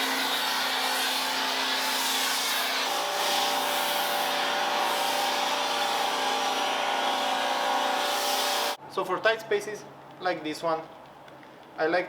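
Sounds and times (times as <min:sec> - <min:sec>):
pressure washer motor humming: 0:00.0 - 0:08.8.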